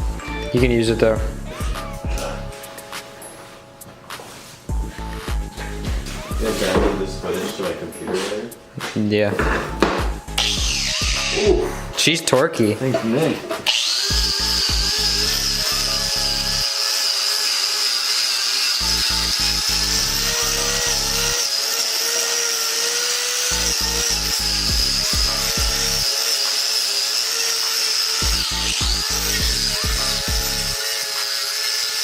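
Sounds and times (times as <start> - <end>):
music with deep bass beat: 0.0 - 2.6, 4.7 - 8.3, 9.4 - 12.0, 14.1 - 16.6, 23.5 - 26.1, 28.2 - 30.8
angle grinder whining: 0.0 - 2.7, 4.7 - 8.3, 9.4 - 12.0, 12.8 - 32.0.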